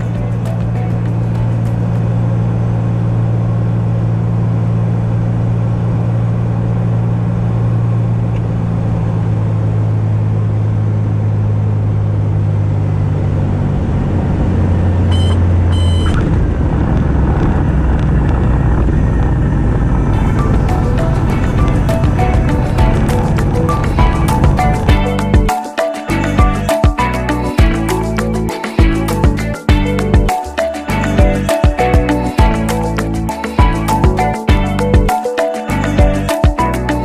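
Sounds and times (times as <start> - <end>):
aircraft engine and propeller droning: 0.0 - 25.1
short high beeps: 15.1 - 16.2.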